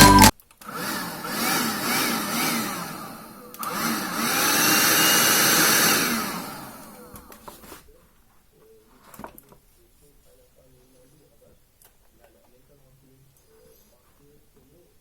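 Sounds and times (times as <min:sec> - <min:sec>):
small electric motor whirring: 0:00.7 - 0:07.1.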